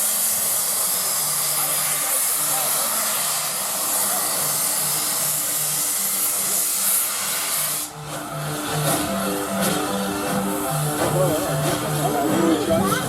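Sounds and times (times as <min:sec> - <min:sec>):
steam locomotive venting steam: 0:00.0 - 0:13.0
music playing: 0:08.0 - 0:13.0.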